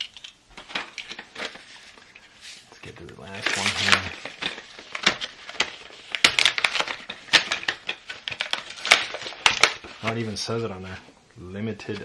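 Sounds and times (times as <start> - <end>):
plastic packaging crinkling: 0.0 - 11.0
plastic packaging clicking: 3.0 - 10.2.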